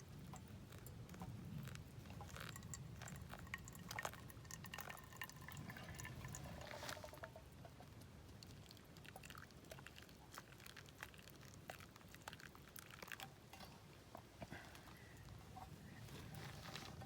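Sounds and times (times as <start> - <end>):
faint small clicks and ticks: 0.0 - 6.2, 6.8 - 15.7.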